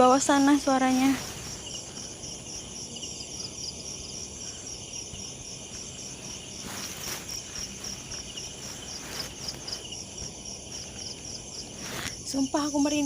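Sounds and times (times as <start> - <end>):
crickets chirping: 0.0 - 13.0
brief rustling: 6.2 - 9.9.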